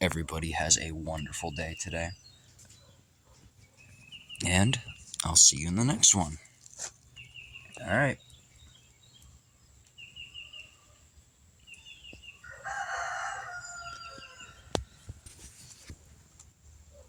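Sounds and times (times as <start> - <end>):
small birds chirping: 0.0 - 17.0
rooster crowing: 12.4 - 15.1.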